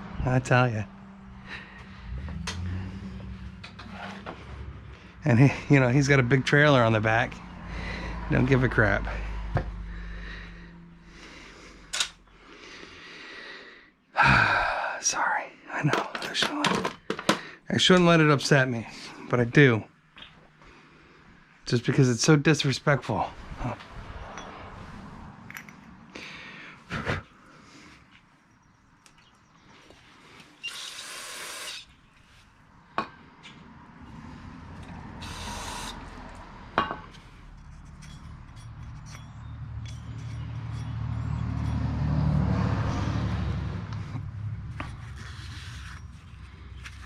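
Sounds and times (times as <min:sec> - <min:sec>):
short hissing bursts: 0:30.6 - 0:31.9, 0:35.2 - 0:36.0.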